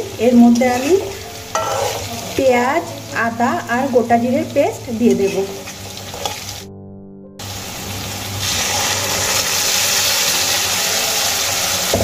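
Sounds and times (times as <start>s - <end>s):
paste sizzling in hot oil: 0.0s - 6.7s, 7.4s - 12.0s.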